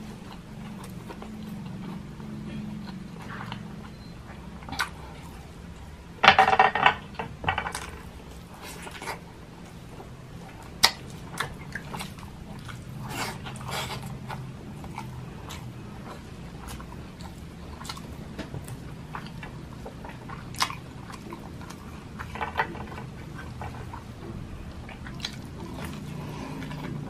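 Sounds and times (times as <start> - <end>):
wet chewing and lip smacks: 10.6 - 27.0.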